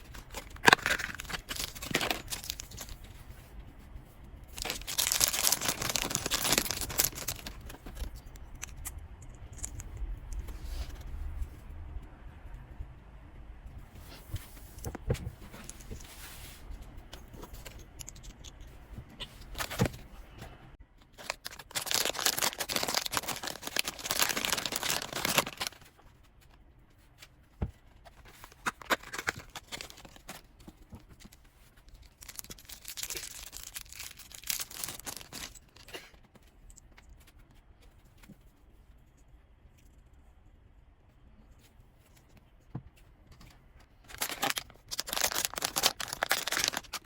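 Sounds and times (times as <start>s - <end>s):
packaging tearing and crinkling: 0.0s - 3.0s, 4.6s - 8.9s, 21.2s - 26.0s, 28.5s - 30.5s, 31.9s - 35.9s, 44.0s - 47.0s.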